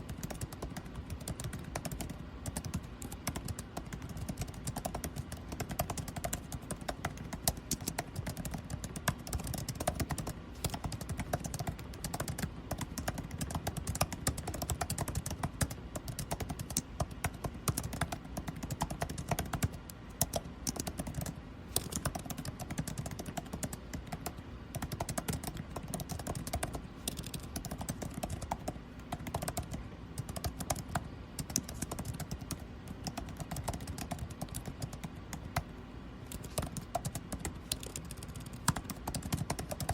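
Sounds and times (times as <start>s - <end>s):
air conditioning hum: 0.0s - 39.9s
typing on keyboard: 0.0s - 39.9s.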